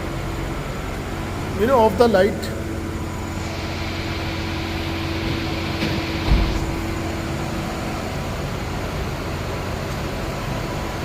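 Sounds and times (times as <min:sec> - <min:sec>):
vehicle interior hum: 0:00.0 - 0:11.0
short low thump: 0:05.3 - 0:07.1.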